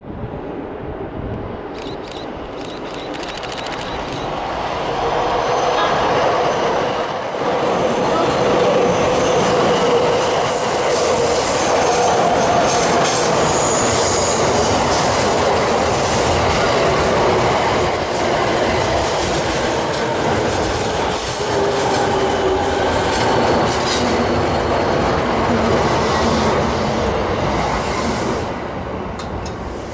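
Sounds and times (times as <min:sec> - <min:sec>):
train wheels rumbling on rails: 0:00.0 - 0:29.9
train brakes squealing: 0:05.4 - 0:15.2.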